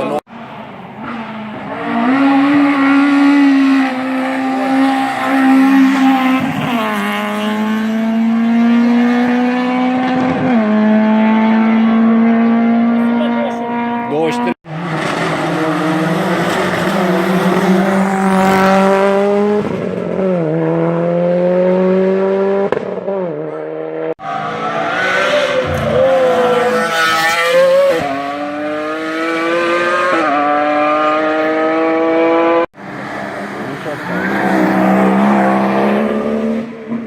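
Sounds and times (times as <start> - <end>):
race car engines accelerating: 0.0 - 37.0.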